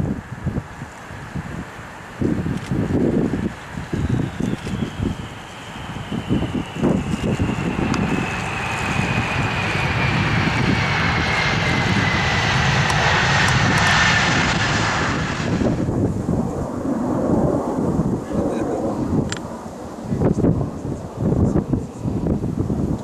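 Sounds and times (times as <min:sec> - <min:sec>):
jet airliner passing: 0:00.0 - 0:23.0
wind rumbling on microphone: 0:00.0 - 0:23.0.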